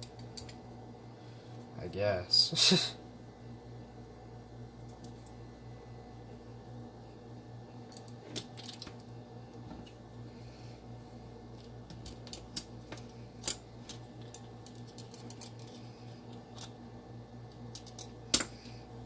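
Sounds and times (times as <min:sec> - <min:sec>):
small metal parts clicking: 0:07.9 - 0:09.0, 0:11.6 - 0:16.8, 0:17.6 - 0:18.6.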